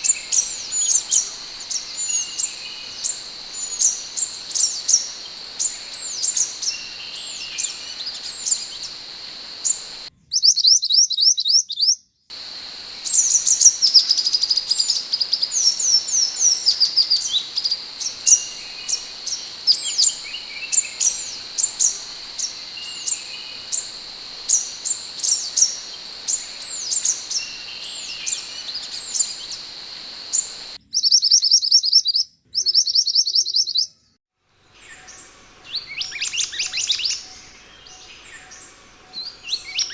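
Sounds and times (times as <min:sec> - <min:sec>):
birds chirping and whistling: 0:00.0 - 0:10.1, 0:12.3 - 0:30.8.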